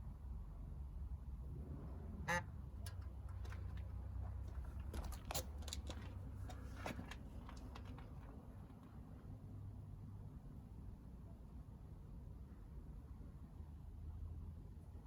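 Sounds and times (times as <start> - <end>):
cooling engine clicks and crackles: 0.8 - 9.6.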